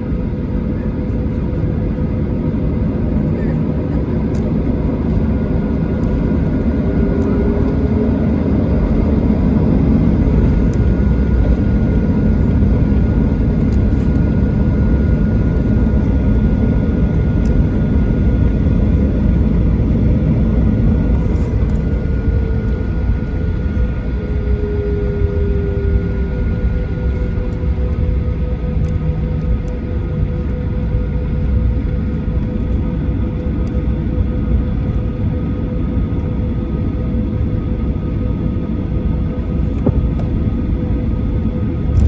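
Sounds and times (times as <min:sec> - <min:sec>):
jet engines rumbling at low power: 0:00.0 - 0:42.0
faint steady whine: 0:00.7 - 0:33.8.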